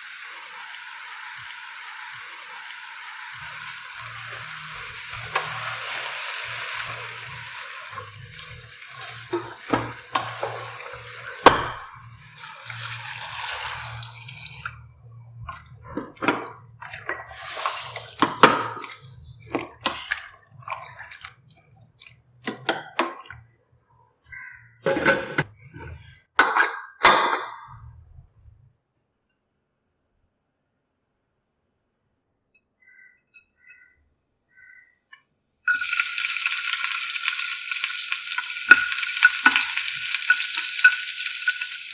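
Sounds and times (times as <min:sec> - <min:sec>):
frying hiss in a pan: 0:00.0 - 0:14.8, 0:17.0 - 0:20.1, 0:35.1 - 0:41.9
utensils clinking against pot: 0:38.3 - 0:41.9.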